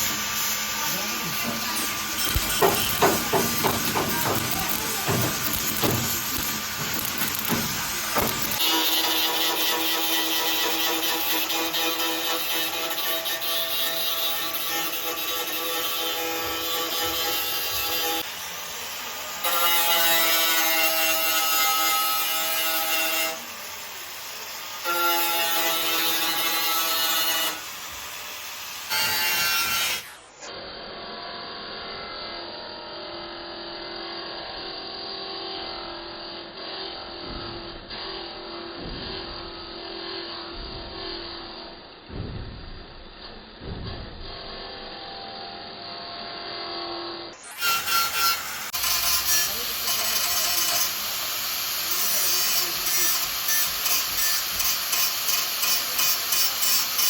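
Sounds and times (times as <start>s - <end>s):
dull low knocks: 42.1s - 44.2s
sanding car bodywork: 47.6s - 57.0s.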